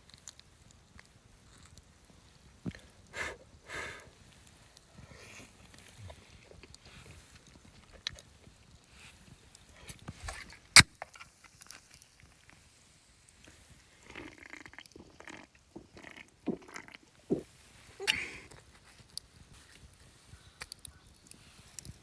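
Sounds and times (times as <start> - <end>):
biting and chewing: 14.0 - 17.5.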